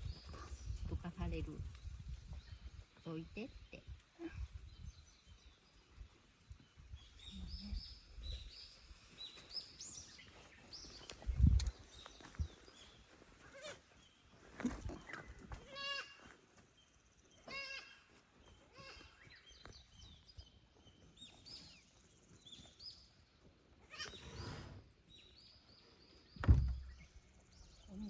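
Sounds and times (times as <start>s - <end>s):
young goats bleating: 13.4s - 13.8s, 15.6s - 16.2s, 17.5s - 18.1s.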